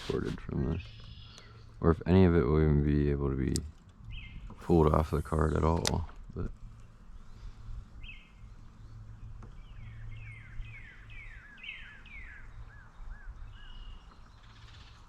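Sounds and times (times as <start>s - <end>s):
songbird whistling: 0.8s - 1.7s, 9.6s - 15.0s.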